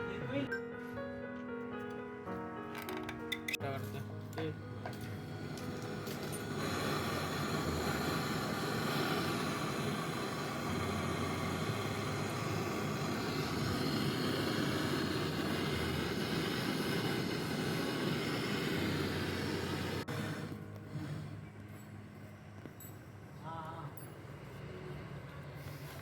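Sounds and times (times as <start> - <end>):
vacuum pump motor humming: 4.8 - 21.3.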